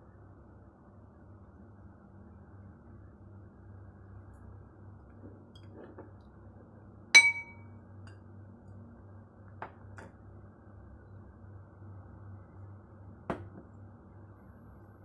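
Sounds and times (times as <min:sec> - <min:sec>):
glass clink: 0:07.2 - 0:07.7.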